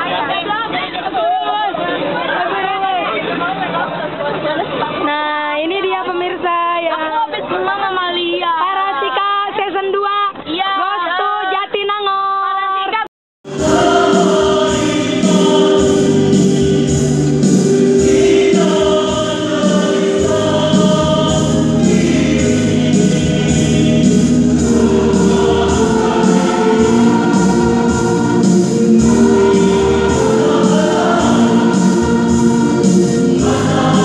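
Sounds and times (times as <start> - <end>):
woman's voice: 0.1 - 13.1
choir singing in harmony: 13.5 - 34.0.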